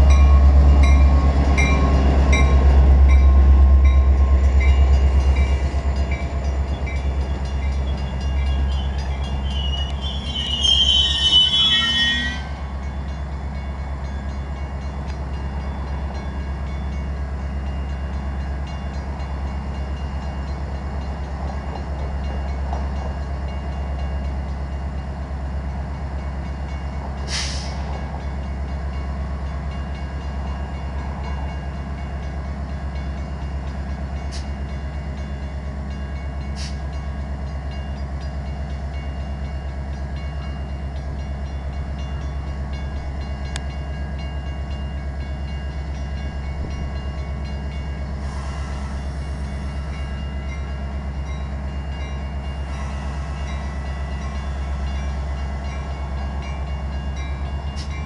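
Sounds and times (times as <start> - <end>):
train rolling noise: 0.0 - 58.0
train brakes squealing: 4.3 - 13.2, 27.2 - 28.1, 36.5 - 36.8, 48.1 - 50.6
air hiss: 48.2 - 49.7.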